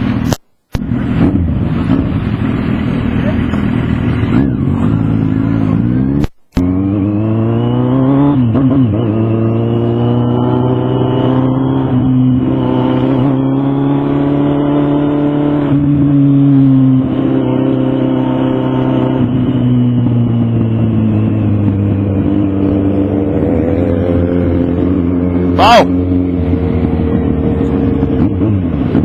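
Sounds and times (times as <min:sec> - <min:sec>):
motorcycle engine accelerating: 0:00.0 - 0:29.0.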